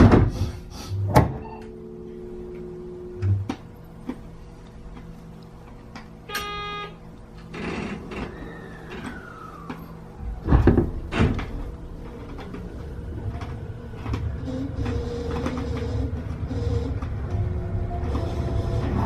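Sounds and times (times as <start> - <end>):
train doors thudding shut: 0.0 - 1.5, 7.5 - 12.7
train low hum: 0.0 - 19.0.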